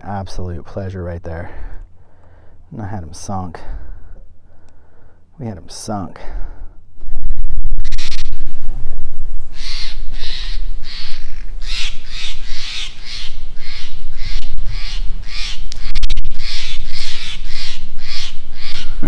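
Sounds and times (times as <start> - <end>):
bird cawing harshly: 9.5 - 19.0.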